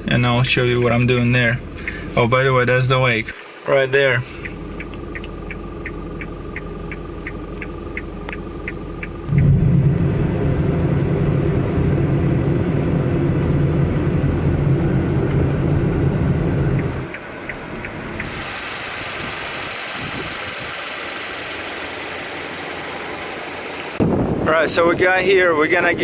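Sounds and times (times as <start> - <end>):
car cabin rumble: 4.1 - 26.0
quick even ticking: 4.2 - 9.6.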